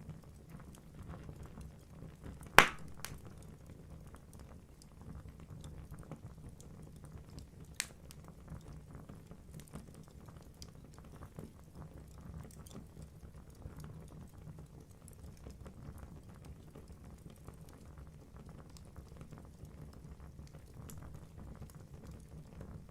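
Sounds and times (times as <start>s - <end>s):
loud pop from fire: 2.6s - 3.4s
logs crackling and snapping: 2.6s - 3.5s, 7.8s - 8.2s, 20.9s - 21.4s.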